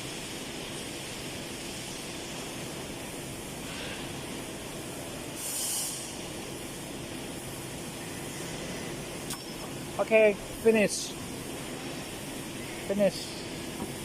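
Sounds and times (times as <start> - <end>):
short hiss: 5.3 - 6.3.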